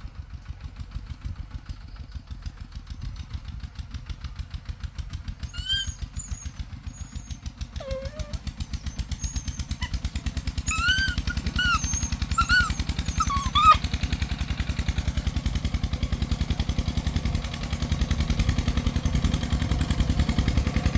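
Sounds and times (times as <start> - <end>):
small engine idling: 0.0 - 20.9
short high-pitched yelps: 5.6 - 6.4, 10.7 - 13.8.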